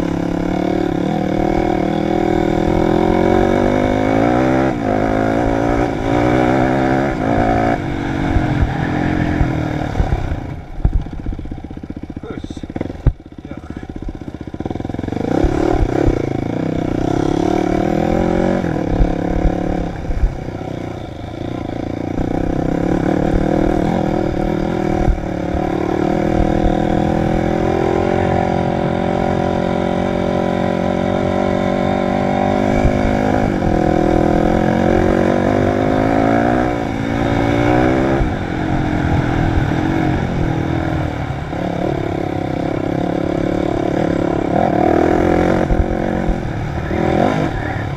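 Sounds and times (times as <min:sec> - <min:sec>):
dirt bike engine revving: 0:00.0 - 0:47.9
low knocks and clatter: 0:09.4 - 0:12.2.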